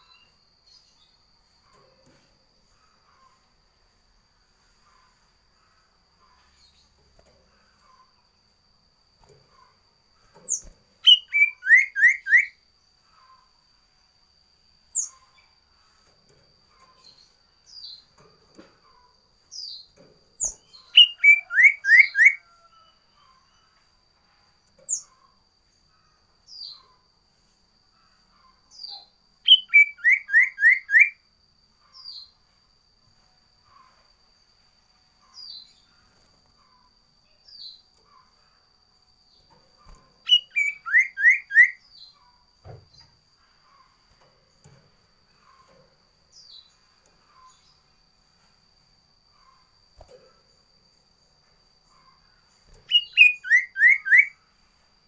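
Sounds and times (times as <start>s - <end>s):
single high bird chirps: 9.2s - 13.5s, 14.9s - 15.5s, 18.9s - 23.7s, 24.8s - 25.3s, 28.4s - 31.2s, 39.3s - 42.3s, 51.9s - 54.4s
songbird whistled phrases: 11.0s - 12.6s, 20.4s - 22.5s, 29.5s - 31.2s, 40.3s - 41.8s, 52.9s - 54.4s.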